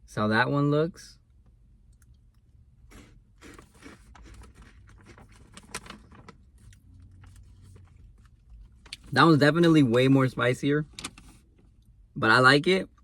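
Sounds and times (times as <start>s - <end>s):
person chewing crunchy snacks: 2.8s - 9.1s.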